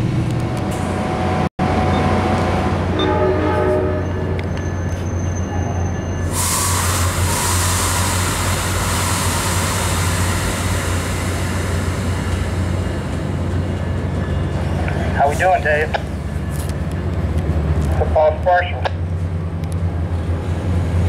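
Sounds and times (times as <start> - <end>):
train rumble in motion: 0.0 - 21.0
loud rushing hiss: 6.3 - 14.0
low drone: 6.3 - 15.2.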